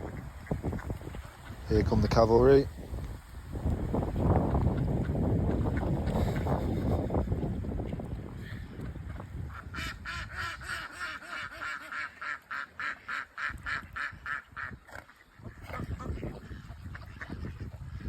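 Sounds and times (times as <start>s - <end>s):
light wind noise: 0.0s - 18.0s
duck quacking: 9.5s - 14.8s.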